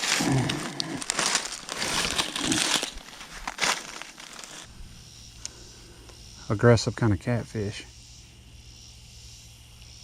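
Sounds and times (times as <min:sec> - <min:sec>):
brush rustling and crunching: 0:00.0 - 0:04.8.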